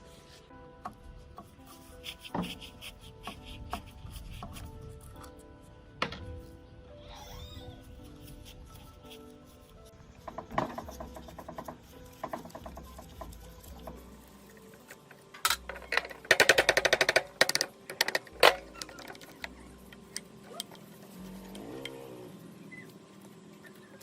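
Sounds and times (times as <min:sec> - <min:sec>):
clicks and knocks on metal parts: 0:15.4 - 0:20.0.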